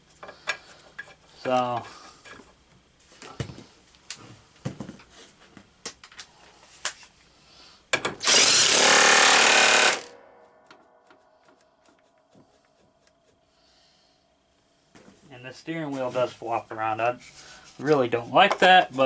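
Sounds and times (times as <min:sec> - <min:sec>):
power drill running: 0:08.2 - 0:10.2.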